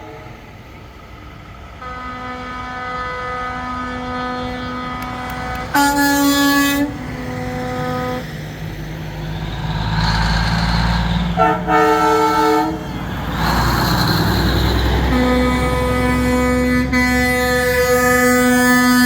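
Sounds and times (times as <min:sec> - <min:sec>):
truck horns blasting: 0:01.8 - 0:08.4, 0:11.2 - 0:13.6, 0:14.5 - 0:19.0
diesel truck engines running: 0:03.2 - 0:19.0.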